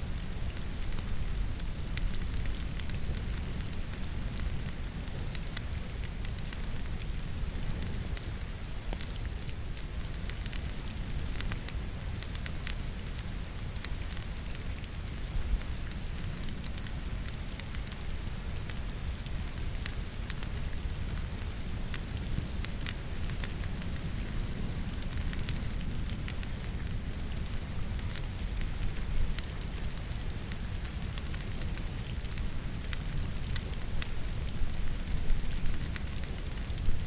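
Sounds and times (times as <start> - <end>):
logs crackling and popping: 0.0 - 37.0
rain: 0.0 - 37.0.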